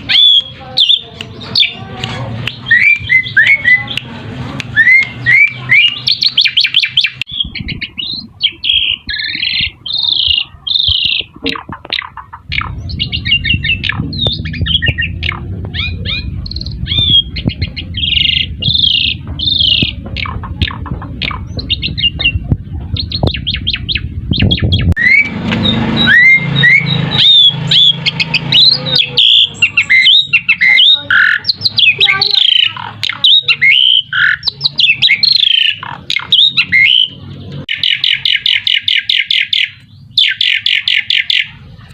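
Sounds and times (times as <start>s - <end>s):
starlings whistling and chattering: 0.0s - 41.9s.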